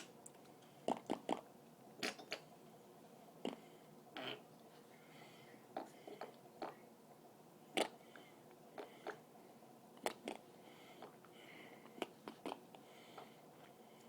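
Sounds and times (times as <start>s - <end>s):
wet mouth clicks: 2.0s - 2.4s.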